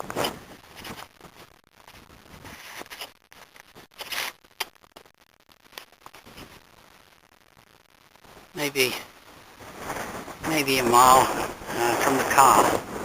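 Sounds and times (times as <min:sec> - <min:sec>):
microphone handling rustling: 0:00.0 - 0:04.3, 0:09.6 - 0:13.0.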